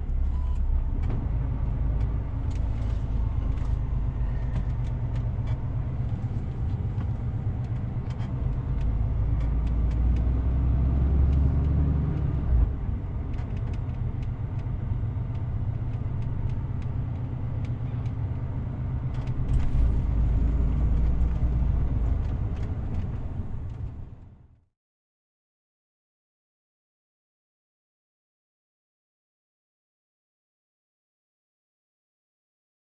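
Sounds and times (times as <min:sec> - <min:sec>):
truck engine and road rumble: 0:00.0 - 0:24.6.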